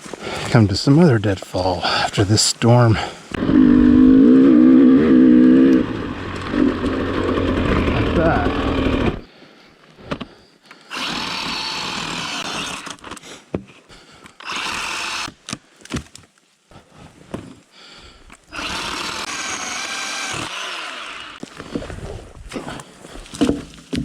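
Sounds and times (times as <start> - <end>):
power saw cutting wood: 3.4 - 9.3, 10.9 - 13.1, 14.4 - 15.3, 18.5 - 21.5
wood knocking and snapping: 23.2 - 24.0.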